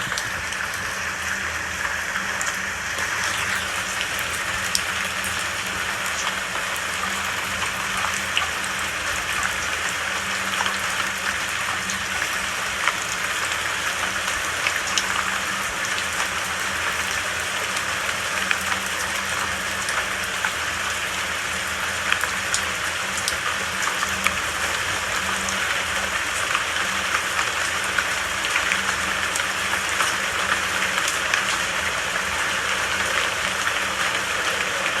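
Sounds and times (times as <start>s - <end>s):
steady rain hiss: 0.0s - 35.0s.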